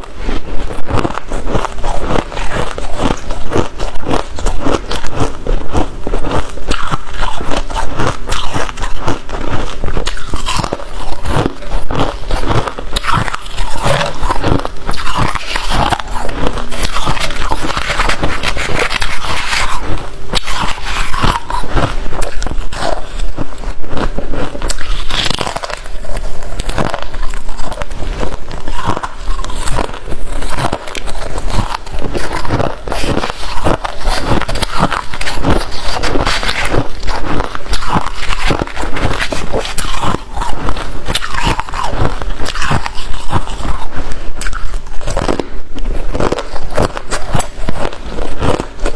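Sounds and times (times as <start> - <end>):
person chewing crunchy frost: 0.0 - 48.9.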